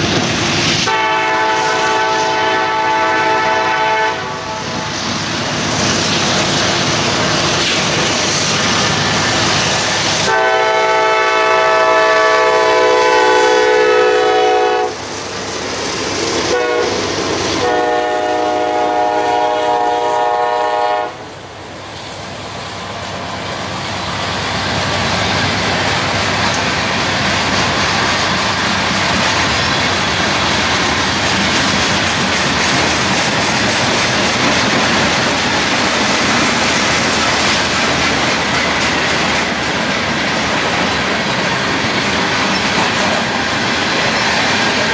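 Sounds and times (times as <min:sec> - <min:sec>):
train wheels rushing on rails: 0:00.0 - 0:44.9
train horn blasts: 0:00.8 - 0:04.9, 0:10.2 - 0:15.0, 0:16.4 - 0:17.0, 0:17.6 - 0:21.3.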